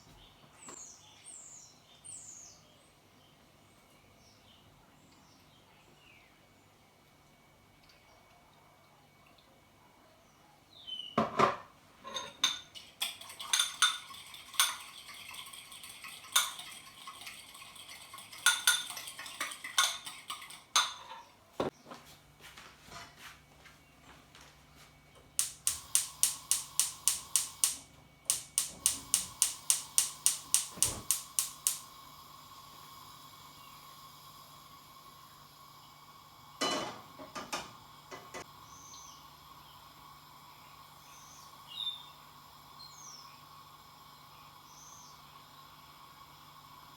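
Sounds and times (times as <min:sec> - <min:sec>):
metal utensils clinking on dishes: 0:12.0 - 0:21.3
faint steady hum: 0:21.8 - 0:46.9.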